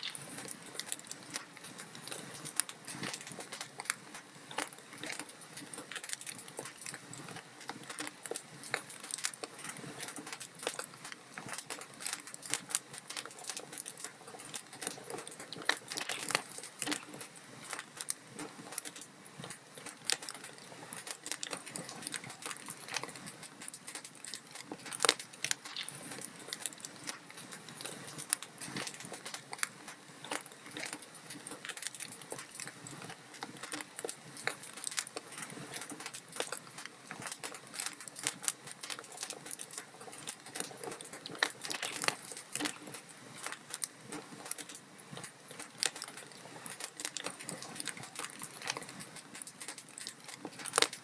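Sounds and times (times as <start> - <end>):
wood fire crackling: 0.0 - 51.0.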